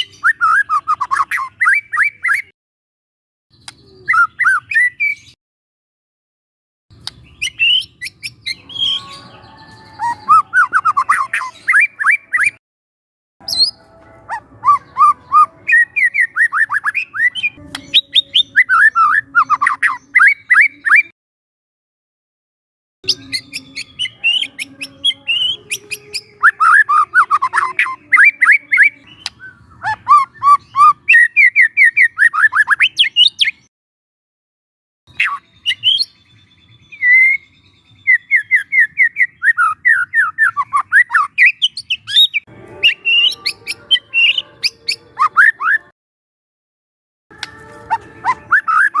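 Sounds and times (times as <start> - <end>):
bird singing sharp sweeping notes: 7.0 - 12.6, 13.4 - 21.1, 35.1 - 45.9.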